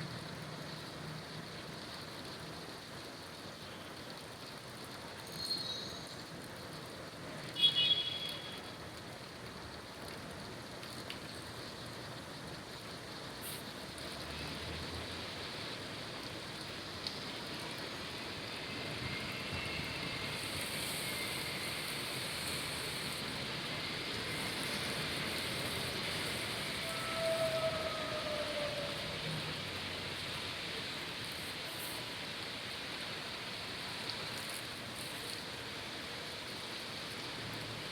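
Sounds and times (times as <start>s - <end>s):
traffic on wet road: 0.0s - 5.2s, 6.1s - 37.9s
rain falling on street: 0.0s - 37.9s
high-pitched squeal: 24.3s - 29.3s.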